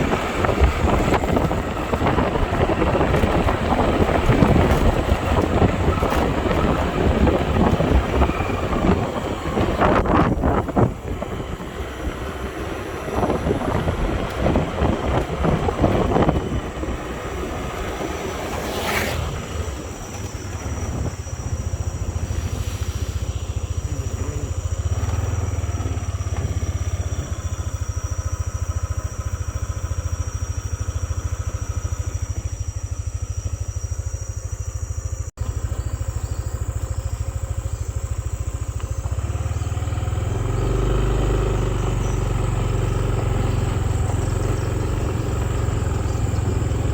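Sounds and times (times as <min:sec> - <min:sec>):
wind buffeting microphone: 0:00.0 - 0:29.8, 0:37.5 - 0:46.9
motorcycle engine running: 0:00.0 - 0:46.9.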